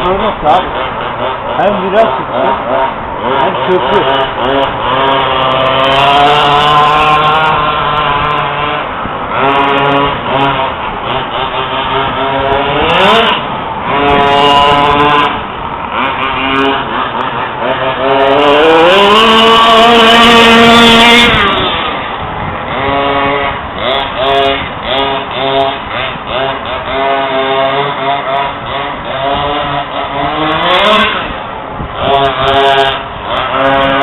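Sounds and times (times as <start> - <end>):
small two-stroke engine revving: 0.0 - 34.0.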